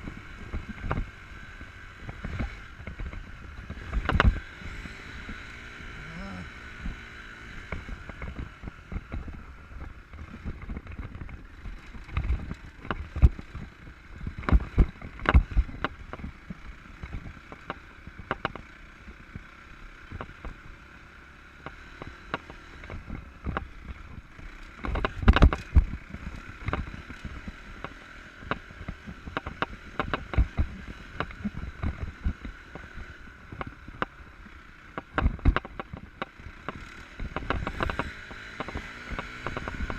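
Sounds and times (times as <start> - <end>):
motorcycle engine: 0.0 - 39.9
wind: 0.0 - 39.9
sharp knocks and thumps: 2.2 - 4.4, 14.4 - 16.3.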